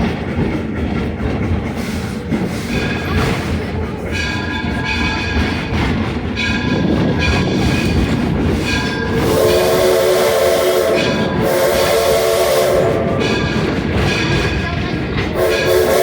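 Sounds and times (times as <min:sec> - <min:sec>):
train rolling rumble: 0:00.0 - 0:16.0
steam hiss: 0:07.6 - 0:14.6
steam locomotive whistle: 0:09.0 - 0:13.7, 0:15.3 - 0:16.0.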